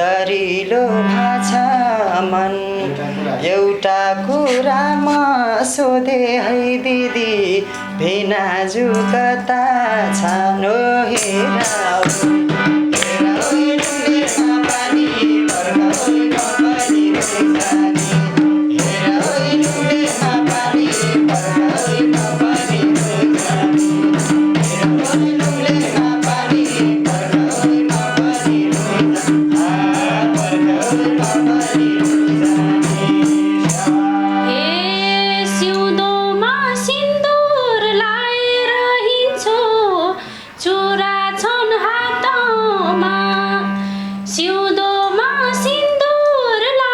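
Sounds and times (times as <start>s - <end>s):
sliding melody line: 0.6s - 40.1s
held drone notes: 6.8s - 40.3s
fast dense percussion with jingling: 11.2s - 34.0s.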